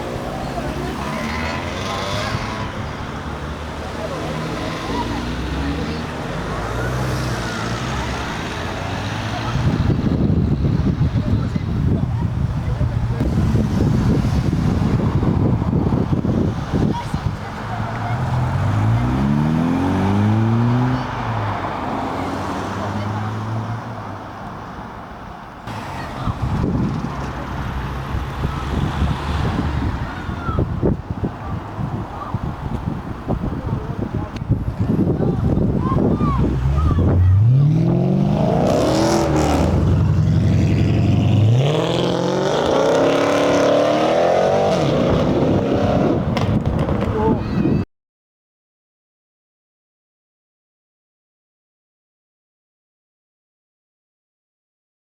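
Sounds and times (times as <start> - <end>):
car engine accelerating: 0.0 - 23.8, 33.9 - 47.5.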